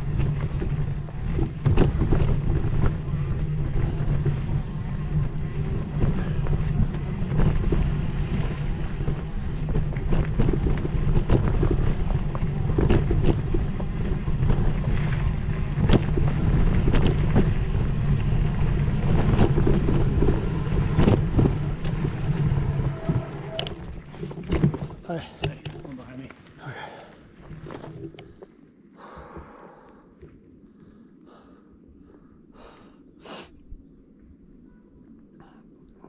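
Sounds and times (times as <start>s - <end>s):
wind rushing over microphone: 0.0s - 25.0s
bike rattling and knocking: 0.0s - 29.6s.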